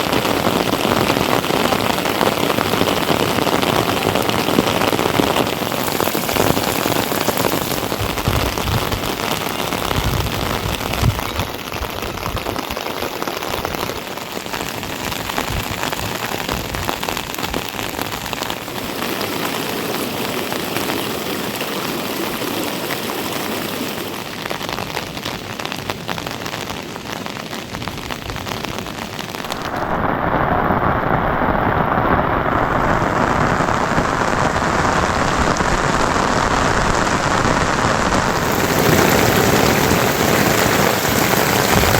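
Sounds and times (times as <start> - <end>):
heavy rain falling: 0.0 - 41.9
low rumbles: 38.3 - 41.9.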